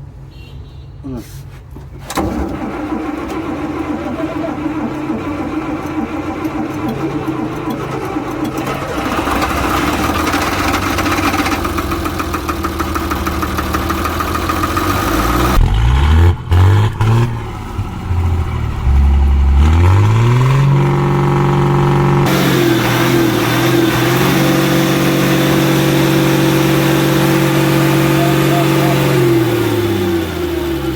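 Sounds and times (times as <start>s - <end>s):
diesel bus engine revving: 2.2s - 30.9s.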